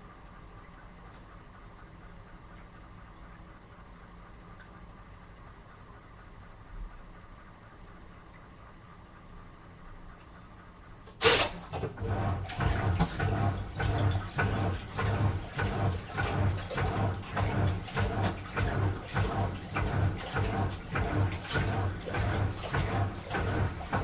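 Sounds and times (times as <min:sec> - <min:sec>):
washing machine motor hum: 0:00.0 - 0:24.0
water and laundry sloshing in drum: 0:11.1 - 0:24.0.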